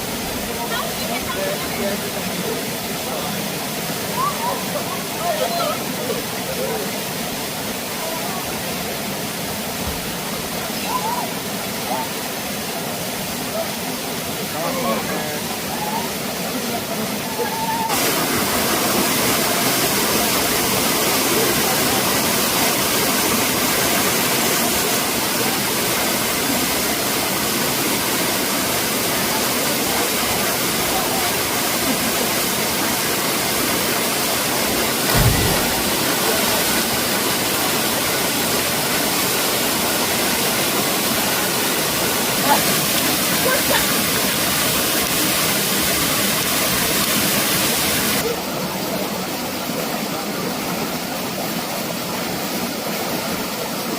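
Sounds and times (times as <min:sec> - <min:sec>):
waterfall rushing: 0:00.0 - 0:53.9
low thump: 0:35.1 - 0:36.7.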